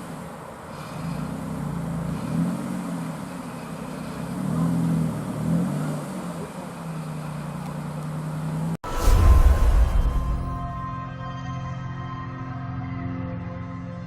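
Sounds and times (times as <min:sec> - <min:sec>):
sports car engine revving: 0:00.0 - 0:08.8.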